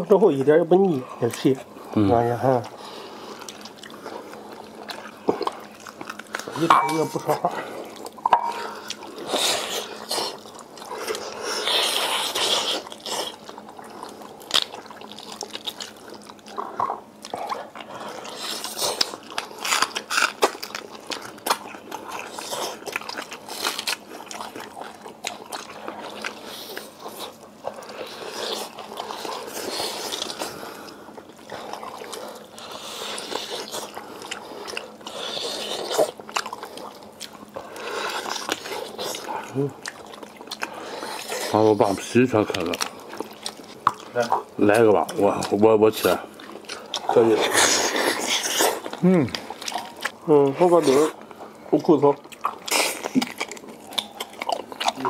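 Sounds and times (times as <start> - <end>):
wet chewing and smacking: 0.0 - 55.0
teeth clicking on bone: 42.5 - 45.6, 47.8 - 50.2, 52.2 - 55.0.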